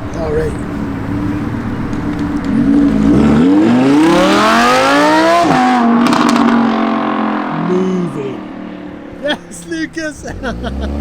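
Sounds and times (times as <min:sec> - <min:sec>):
car engine accelerating: 0:00.0 - 0:09.2, 0:10.2 - 0:11.0.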